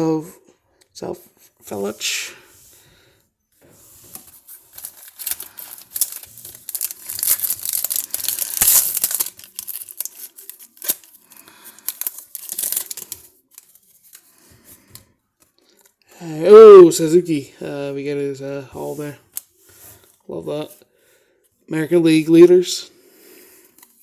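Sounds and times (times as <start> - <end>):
plastic wrapper crinkling and tearing: 4.1 - 14.4.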